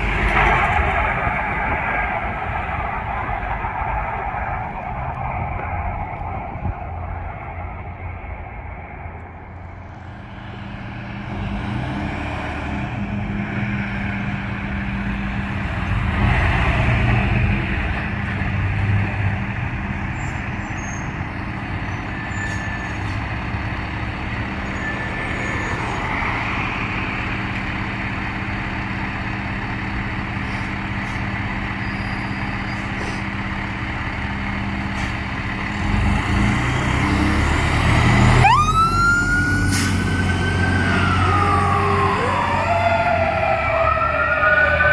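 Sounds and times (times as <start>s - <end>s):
diesel truck engine running: 0.0s - 44.9s
road noise: 0.0s - 44.9s
siren: 0.8s - 9.9s, 24.5s - 27.6s, 37.2s - 44.9s.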